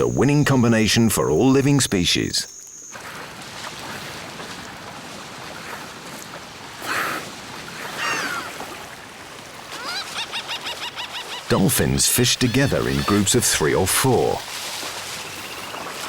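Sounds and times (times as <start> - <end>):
ocean water rushing: 3.0 - 16.0
dolphin whistles: 9.7 - 14.4.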